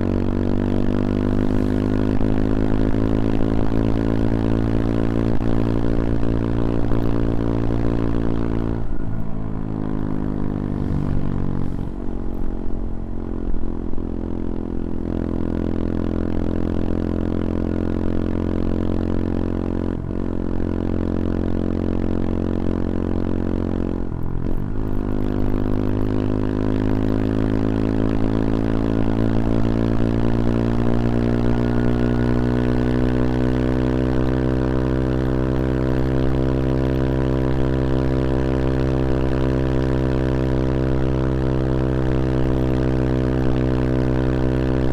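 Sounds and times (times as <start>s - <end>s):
motorcycle engine running: 0.0s - 44.9s
wind rush: 10.5s - 13.1s.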